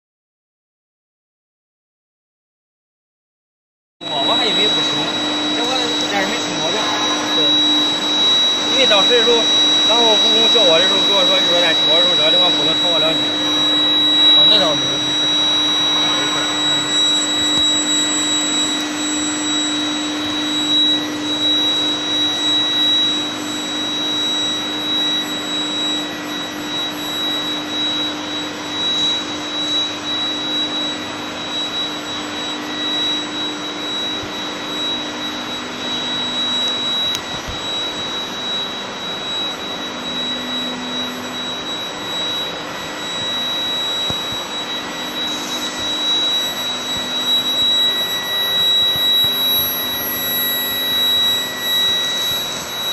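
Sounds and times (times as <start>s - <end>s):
industrial machinery din: 4.0s - 23.3s
high-pitched whine: 4.0s - 52.9s.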